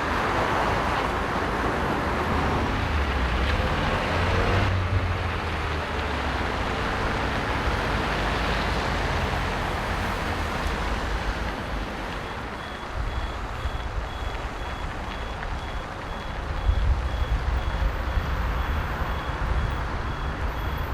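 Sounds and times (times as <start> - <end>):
heavy vehicle engine rumbling: 0.0 - 20.9
reversing alarm beeps: 12.2 - 20.9.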